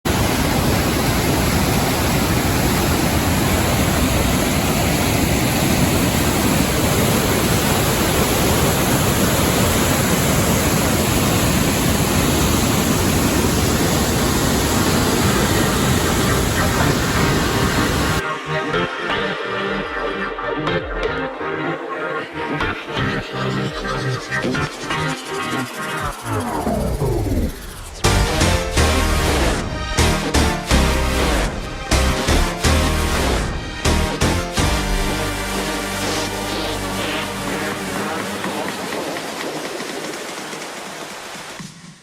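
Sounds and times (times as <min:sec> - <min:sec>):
waterfall roaring: 0:00.1 - 0:18.2, 0:34.6 - 0:41.6.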